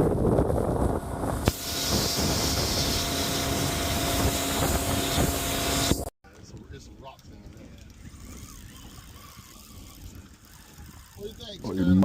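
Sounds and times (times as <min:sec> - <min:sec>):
wind rushing: 0:00.0 - 0:06.0
engine running: 0:00.0 - 0:06.1
steady hum: 0:00.0 - 0:06.1.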